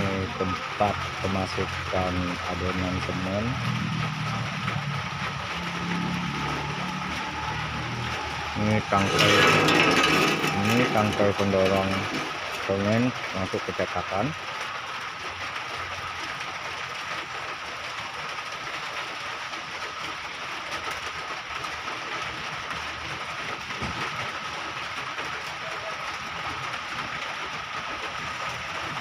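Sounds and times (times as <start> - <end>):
machine rushing noise: 4.0 - 13.0.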